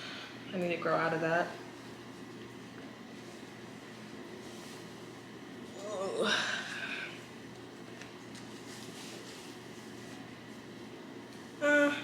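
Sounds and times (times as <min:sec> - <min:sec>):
faint steady hum and hiss: 0:00.0 - 0:12.0.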